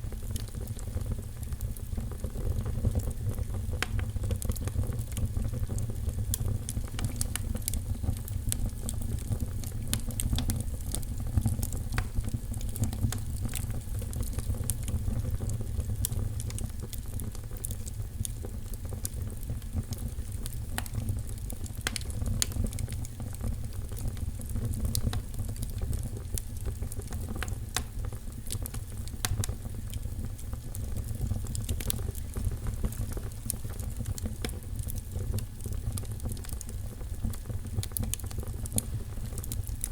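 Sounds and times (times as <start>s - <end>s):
low fire rumble: 0.0s - 39.9s
wood fire crackling and popping: 0.0s - 39.9s.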